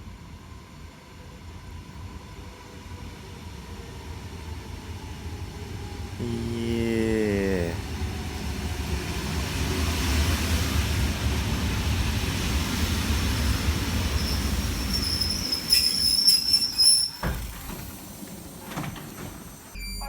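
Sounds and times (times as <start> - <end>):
train rumbling on rails: 8.6 - 19.7
high wheel squeal: 14.2 - 17.4.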